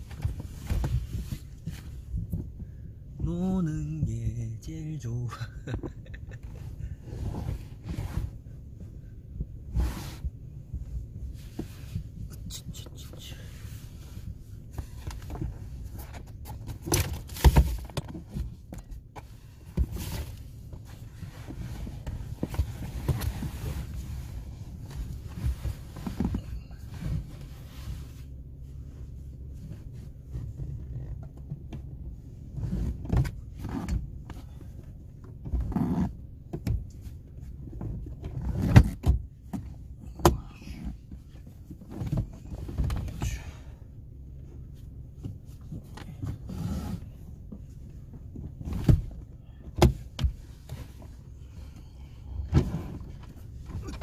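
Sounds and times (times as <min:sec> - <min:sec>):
thumps and knocks of handling: 0:00.0 - 0:03.4, 0:14.7 - 0:27.5, 0:29.6 - 0:43.4, 0:44.4 - 0:51.2
steady low rumble: 0:00.0 - 0:54.0.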